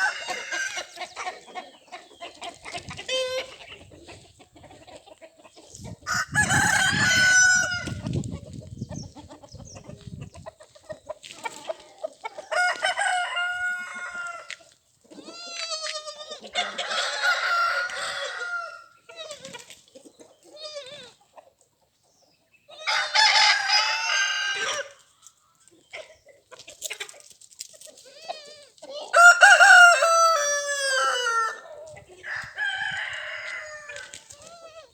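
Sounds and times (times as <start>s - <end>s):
roosters crowing: 0.0s - 1.2s, 6.0s - 8.2s, 12.4s - 14.6s, 16.4s - 19.0s, 22.8s - 25.0s, 29.1s - 34.8s
chickens clucking: 0.0s - 34.9s.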